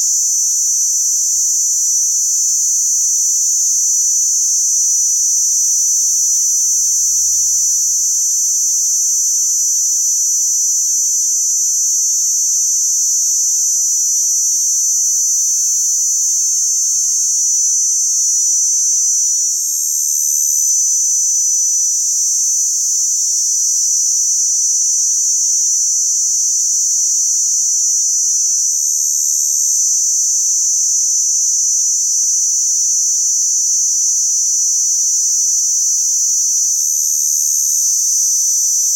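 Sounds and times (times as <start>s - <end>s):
crickets chirping: 0.0s - 38.9s
higher insect trill: 16.4s - 38.9s.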